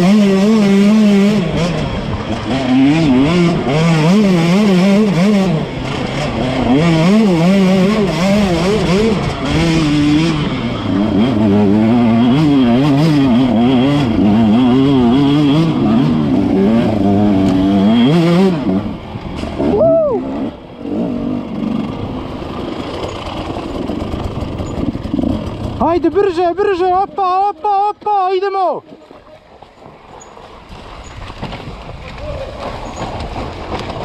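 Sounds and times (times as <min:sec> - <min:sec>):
dirt bike engine revving: 0:00.0 - 0:27.9.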